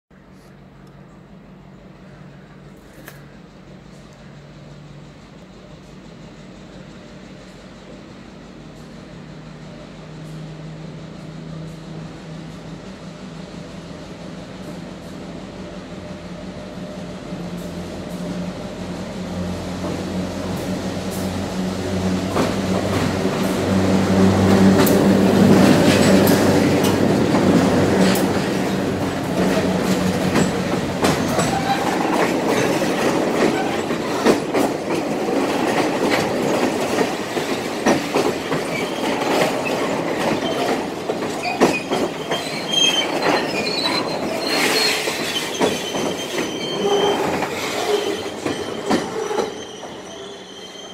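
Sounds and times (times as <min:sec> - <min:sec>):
diesel locomotive engine drone: 0:00.1 - 0:50.9
wheels clicking over rail joints: 0:22.2 - 0:50.2
wheel squeals: 0:29.2 - 0:34.6, 0:38.5 - 0:50.9.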